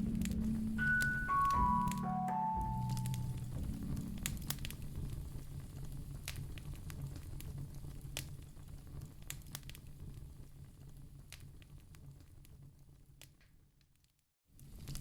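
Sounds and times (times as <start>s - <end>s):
low steady rumble: 0.0s - 0.8s, 2.6s - 9.1s
wood fire crackling: 0.0s - 2.0s, 2.8s - 15.0s
sharp pops of fire: 4.2s - 12.6s.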